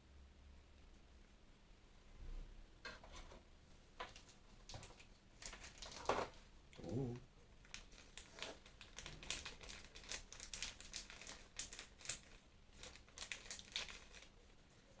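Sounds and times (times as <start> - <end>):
plastic packaging crinkling: 4.0 - 6.4, 7.6 - 15.0.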